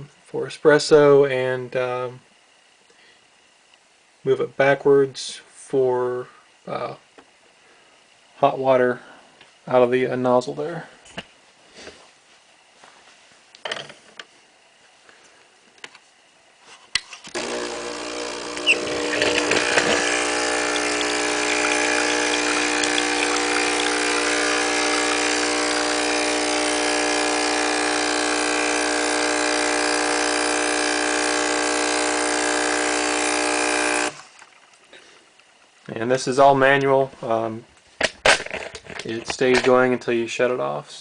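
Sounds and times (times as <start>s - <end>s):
espresso machine pump running: 17.3s - 34.7s.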